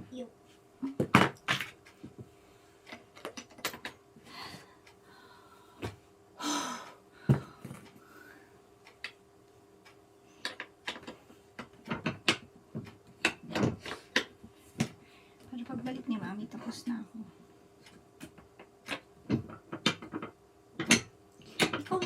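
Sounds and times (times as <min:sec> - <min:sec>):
faint steady hum: 0:00.0 - 0:22.0
clicks and knocks of hardware: 0:02.8 - 0:04.0.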